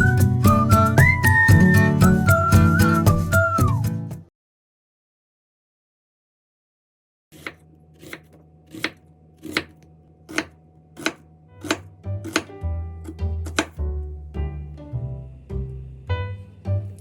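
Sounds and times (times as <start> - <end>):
knife chopping on cutting board: 7.4 - 13.9.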